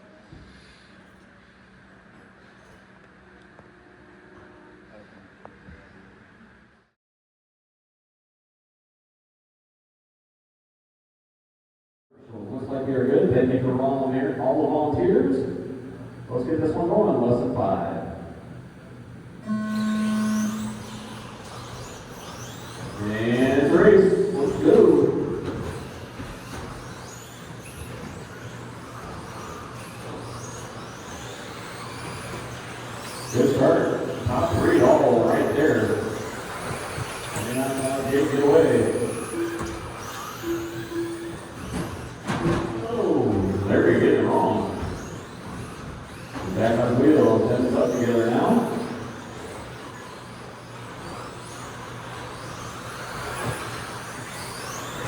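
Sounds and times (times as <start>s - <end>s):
steady low hum: 12.3s - 22.1s
toy car electric motors whining: 19.4s - 55.0s.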